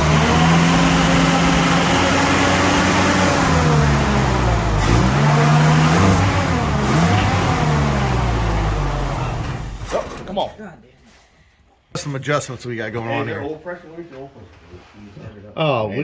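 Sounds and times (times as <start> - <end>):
pickup engine revving: 0.0 - 9.9.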